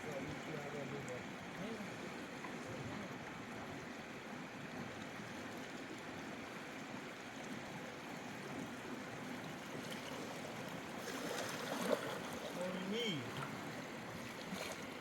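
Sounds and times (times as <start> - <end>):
river water rushing: 9.6 - 15.0.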